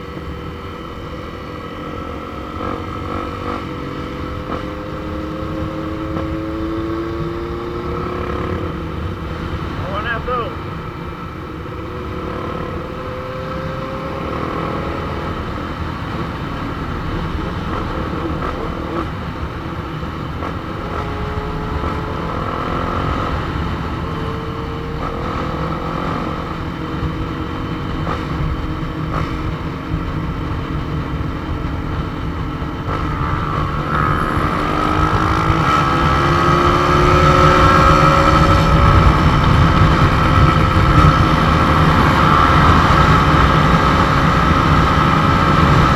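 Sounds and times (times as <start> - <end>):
motorcycle engine revving: 0.0 - 45.9
wind rushing on microphone: 14.6 - 45.9.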